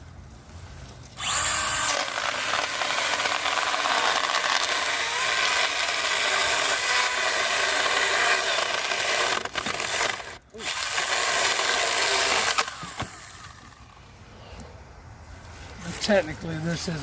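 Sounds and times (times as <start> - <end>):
mini chainsaw cutting wood: 1.2 - 14.0.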